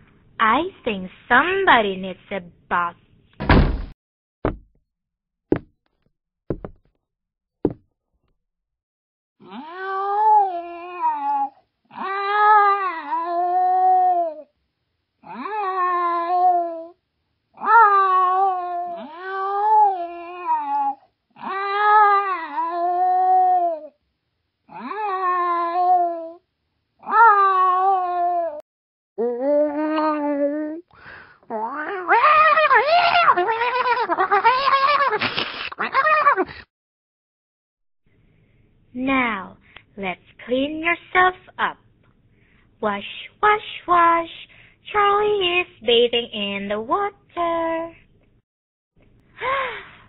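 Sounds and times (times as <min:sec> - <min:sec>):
sharp knocks: 0:03.4 - 0:04.7, 0:05.5 - 0:05.7, 0:06.5 - 0:06.9.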